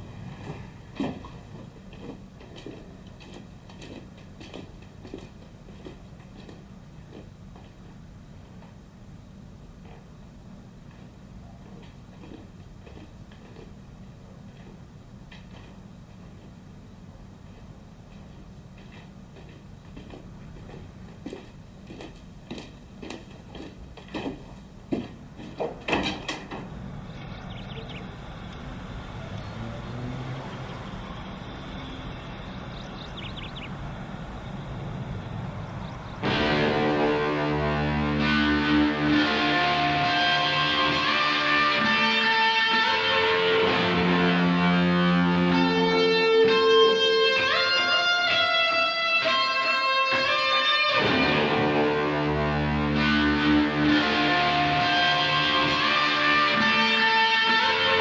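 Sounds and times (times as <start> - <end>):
steady low rumble: 26.5 - 41.0
guitar playing sustained notes: 27.1 - 58.0.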